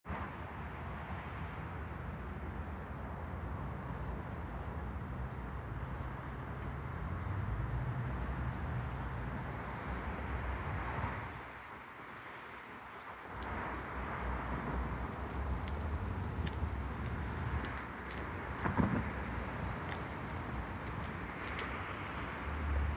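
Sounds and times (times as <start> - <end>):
train rolling rumble: 11.6 - 22.9.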